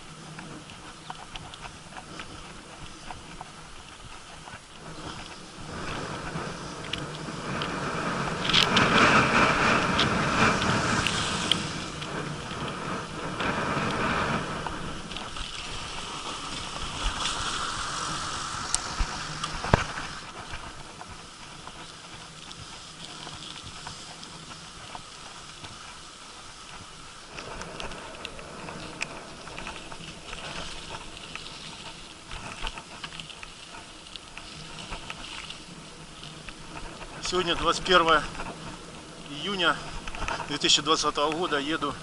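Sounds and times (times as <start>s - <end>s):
bicycle tyres on rough asphalt: 0.0s - 42.0s
bike clicks and rattles: 0.1s - 42.0s
wind rushing: 4.8s - 21.3s.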